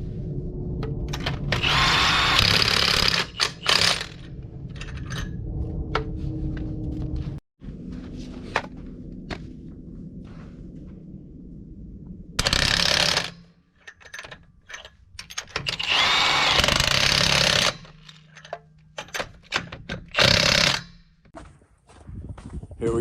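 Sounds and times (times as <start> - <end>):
impact wrench running: 1.2 - 4.3, 12.4 - 13.3, 15.6 - 18.4, 19.6 - 21.1.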